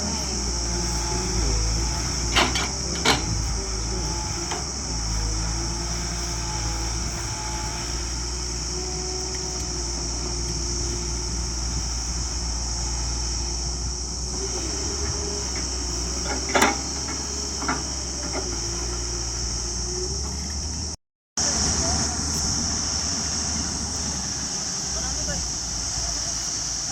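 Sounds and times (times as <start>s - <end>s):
tractor diesel engine running: 0.0s - 26.9s
high-pitched hiss: 21.4s - 26.9s.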